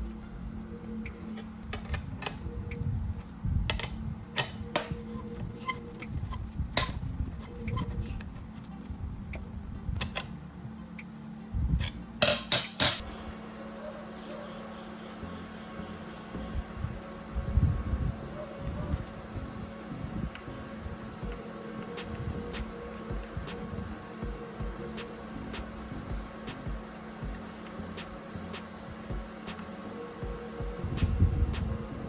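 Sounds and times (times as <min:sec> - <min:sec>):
steady low hum: 0:00.0 - 0:32.0
metal parts clinking: 0:12.2 - 0:13.1.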